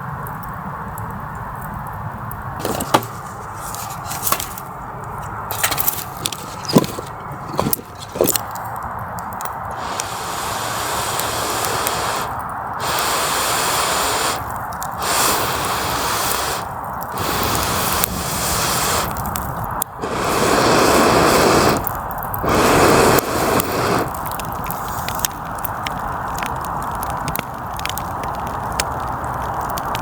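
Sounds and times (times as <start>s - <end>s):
person blowing on campfire: 5.2s - 8.5s, 9.6s - 25.2s.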